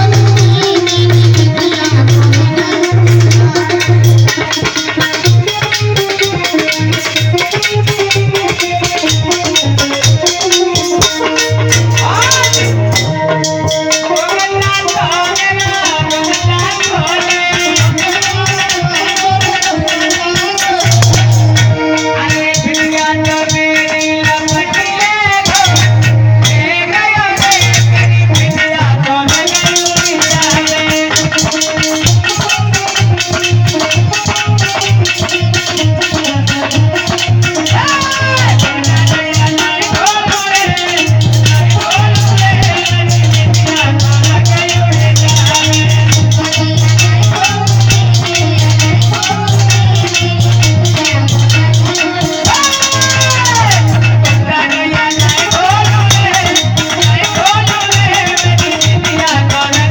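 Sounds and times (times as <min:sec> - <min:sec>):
held melody notes: 0:00.0 - 0:29.1
fast percussion with rattles: 0:00.0 - 0:59.9
swooping melody line: 0:10.1 - 0:14.7
low drum beat: 0:20.4 - 0:21.8.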